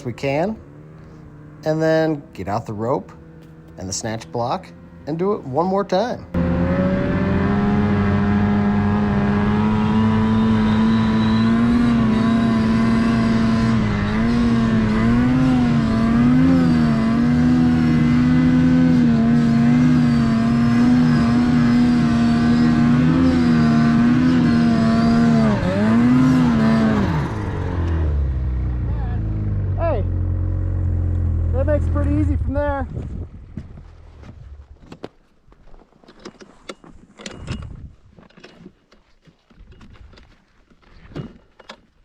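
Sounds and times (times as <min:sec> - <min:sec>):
snowmobile engine revving: 0:00.0 - 0:33.0.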